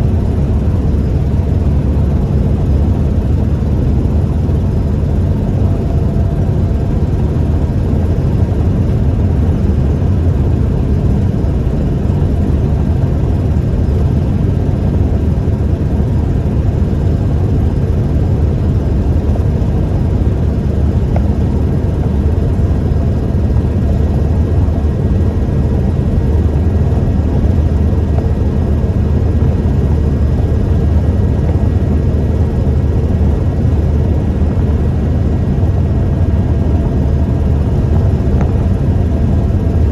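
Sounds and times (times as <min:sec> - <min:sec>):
pickup engine rumble: 0:00.0 - 0:39.9
road noise: 0:00.0 - 0:39.9.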